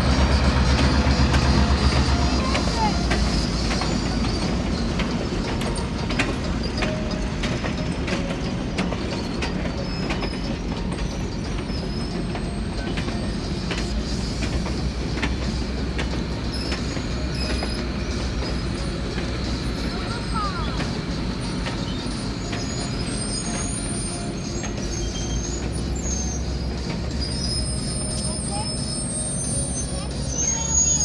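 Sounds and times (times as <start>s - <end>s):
train rumbling past: 0.0s - 31.0s
wheel squeals: 0.0s - 31.0s
wheels clicking over rail joints: 0.0s - 31.0s.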